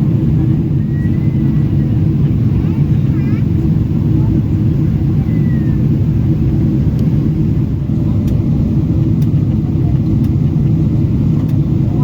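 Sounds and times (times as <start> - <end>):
airplane cabin roar: 0.0 - 12.0.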